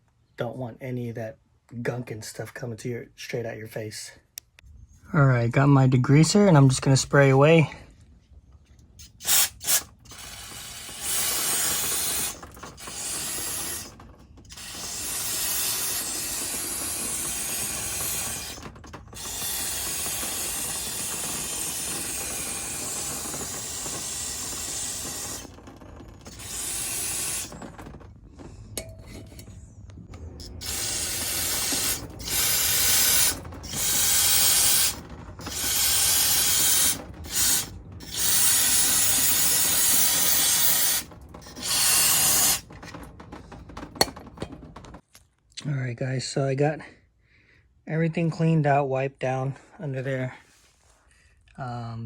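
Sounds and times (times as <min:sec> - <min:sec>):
aerosol can spraying: 0:09.0 - 0:13.9, 0:14.5 - 0:18.6, 0:26.3 - 0:27.6, 0:30.6 - 0:42.7.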